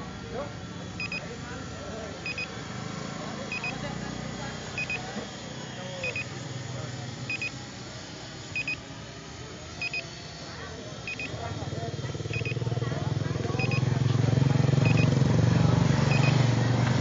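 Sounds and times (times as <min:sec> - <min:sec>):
murmur of voices: 0:00.0 - 0:17.0
electronic double beeps: 0:08.6 - 0:08.8, 0:13.6 - 0:13.9, 0:16.1 - 0:16.4.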